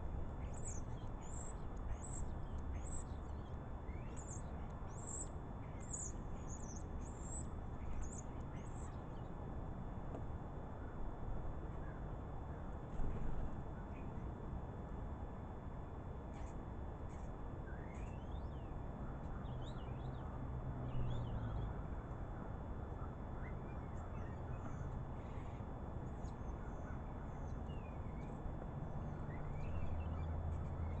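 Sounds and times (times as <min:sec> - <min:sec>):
wild birds calling: 0:00.0 - 0:09.6, 0:16.3 - 0:31.0
steady low rumble: 0:00.0 - 0:31.0.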